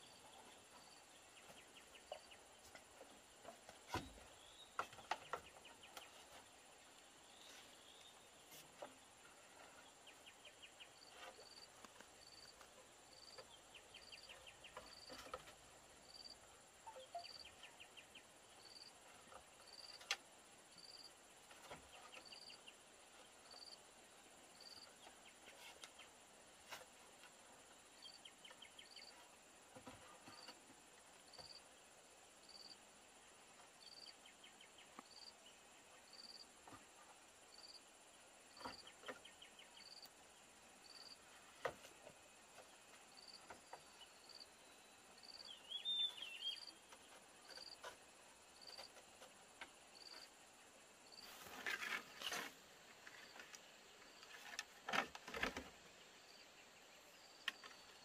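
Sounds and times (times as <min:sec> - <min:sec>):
insects buzzing trills: 0:00.0 - 0:58.0
cricket chirping: 0:10.5 - 0:21.2, 0:22.1 - 0:26.0, 0:27.6 - 0:58.0.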